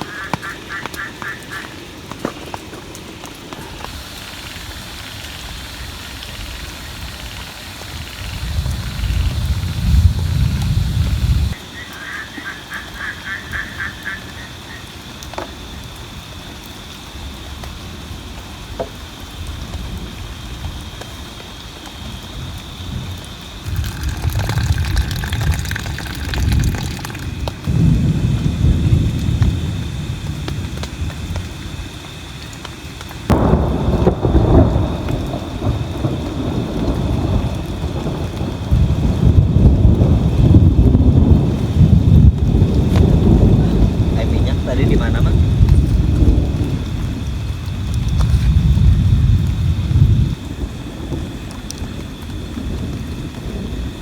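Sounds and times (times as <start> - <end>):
animal calling rapidly: 0.0 - 1.8, 11.7 - 14.9
rain hissing: 0.0 - 54.0
thunder cracking and rumbling: 3.4 - 11.7, 17.2 - 54.0.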